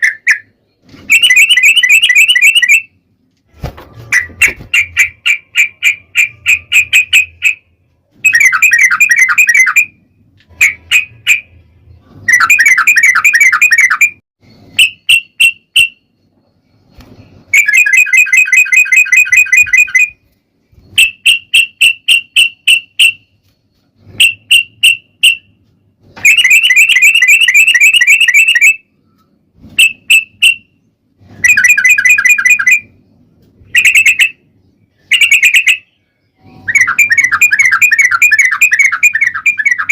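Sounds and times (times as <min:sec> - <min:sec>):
bulbul singing trilled song: 0:01.1 - 0:02.9, 0:26.3 - 0:28.8, 0:33.6 - 0:39.9.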